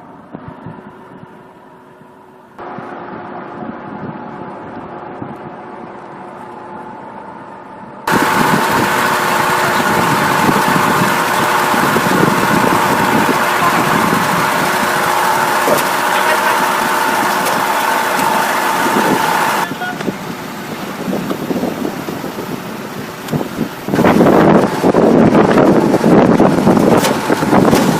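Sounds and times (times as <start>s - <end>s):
heavy vehicle engine running: 0.0s - 27.9s.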